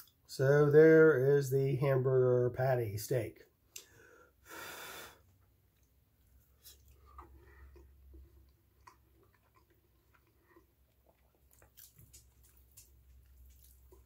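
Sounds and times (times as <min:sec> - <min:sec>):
mouth clicks and smacks: 0:03.7 - 0:03.9, 0:06.6 - 0:14.0
faint chewing: 0:05.3 - 0:14.0.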